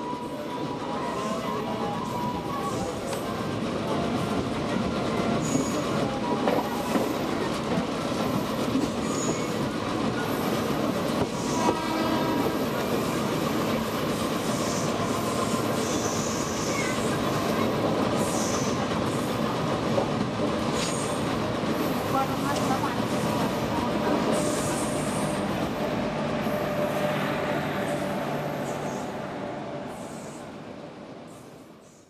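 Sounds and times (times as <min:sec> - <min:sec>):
train wheels rumbling on track: 0:00.0 - 0:32.0.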